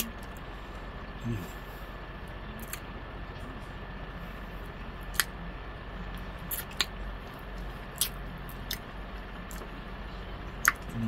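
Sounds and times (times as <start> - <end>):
steady low hum: 0.0 - 11.0
person chewing with wet mouth sounds: 4.6 - 5.4, 6.1 - 9.8, 10.6 - 11.0
lip smacks: 5.0 - 5.4, 6.5 - 7.0, 7.9 - 8.9, 10.6 - 10.9.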